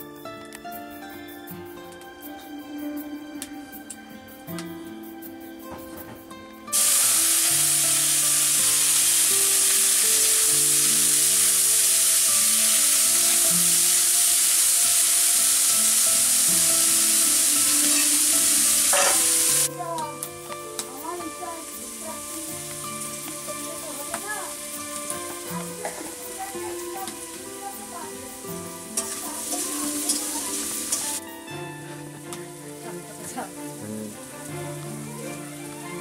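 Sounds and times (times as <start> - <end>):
food sizzling in a wok: 6.7 - 36.0
spatula scraping a pan: 18.9 - 19.6.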